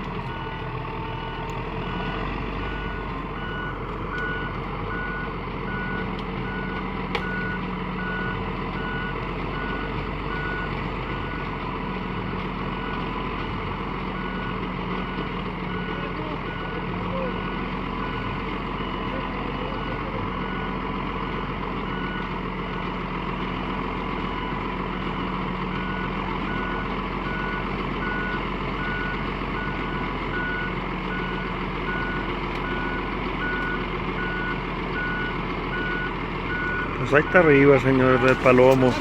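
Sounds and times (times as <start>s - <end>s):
tractor diesel engine running: 0.0s - 39.0s
back-up alarm beeping: 0.3s - 11.4s, 30.4s - 39.0s.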